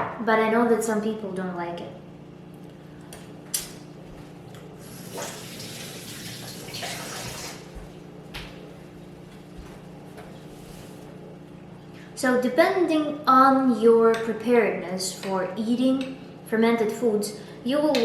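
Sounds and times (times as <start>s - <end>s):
wet splashy cabbage: 4.8s - 7.7s.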